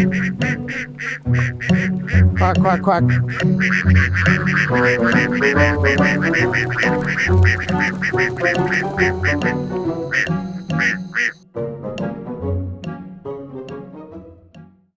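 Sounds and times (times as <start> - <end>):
duck quacks: 0.0 - 11.4
upbeat background music: 0.0 - 14.9.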